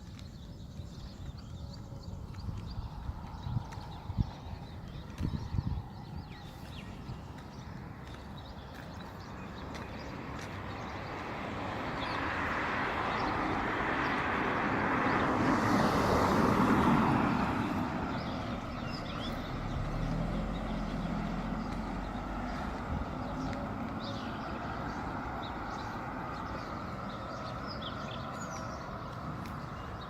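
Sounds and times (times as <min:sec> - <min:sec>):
low engine hum: 0:00.1 - 0:30.0
vehicle passing by: 0:09.7 - 0:30.0.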